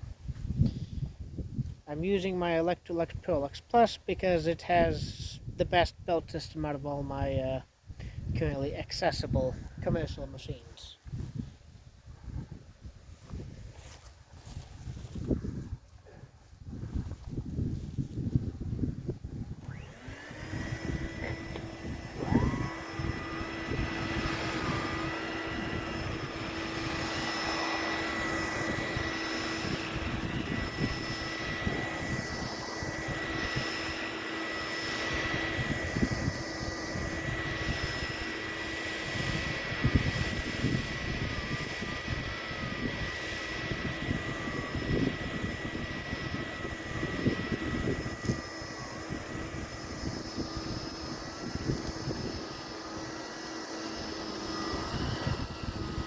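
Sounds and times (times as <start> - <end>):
vacuum cleaner motor whine: 13.2 - 56.0.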